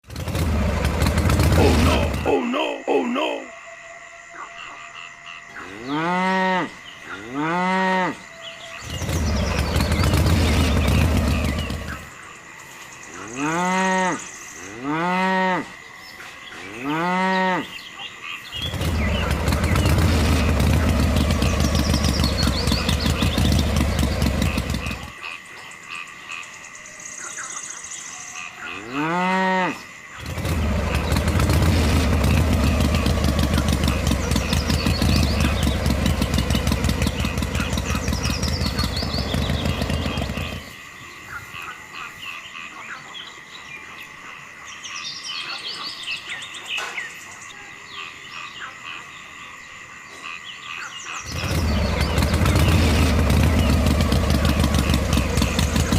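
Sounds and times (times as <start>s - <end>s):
cow mooing: 5.6s - 8.3s, 13.2s - 15.8s, 16.6s - 17.8s, 28.7s - 30.5s
low motor-like rumble: 5.9s - 16.2s, 18.6s - 25.2s, 29.9s - 41.2s, 51.2s - 55.9s.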